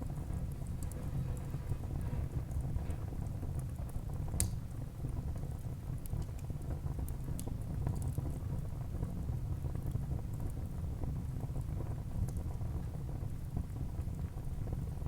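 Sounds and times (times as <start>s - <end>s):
fire crackles and pops: 0.0s - 15.0s
low rumble of flames: 0.0s - 15.0s.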